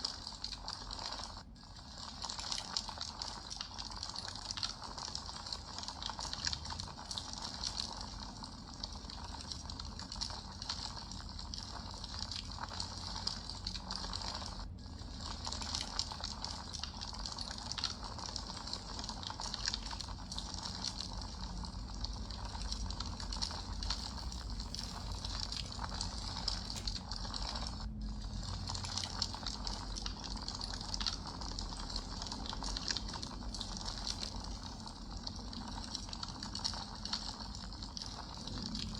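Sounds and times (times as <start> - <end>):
campfire crackling: 18.6 - 37.2.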